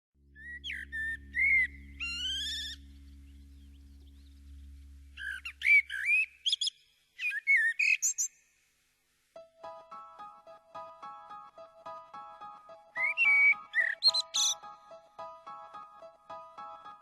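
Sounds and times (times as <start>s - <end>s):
low steady hum: 0.2s - 6.0s
songbird singing: 0.4s - 8.6s, 12.9s - 14.7s.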